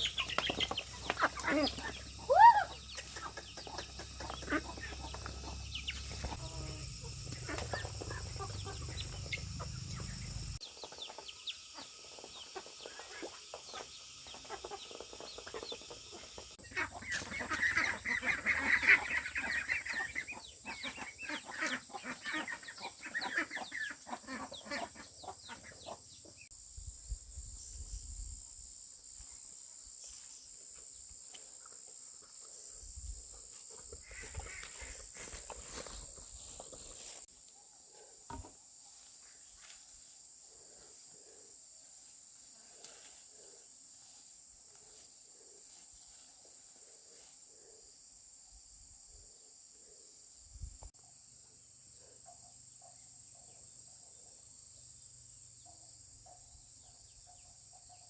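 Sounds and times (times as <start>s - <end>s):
chickens clucking: 0.0s - 26.4s.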